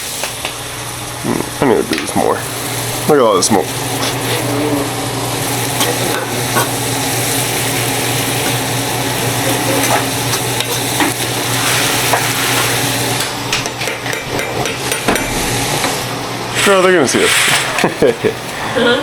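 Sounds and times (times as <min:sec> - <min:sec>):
food sizzling in frying pan: 0:00.0 - 0:13.5, 0:14.8 - 0:16.2.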